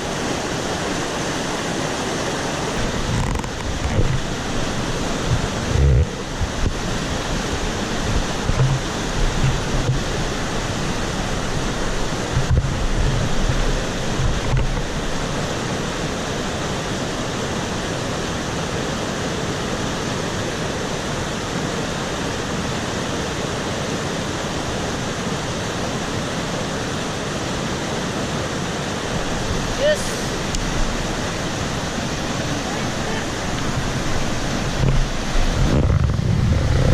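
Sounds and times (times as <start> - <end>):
mountain stream rushing: 0.0 - 36.9
wind buffeting microphone: 2.6 - 15.5, 29.0 - 36.9.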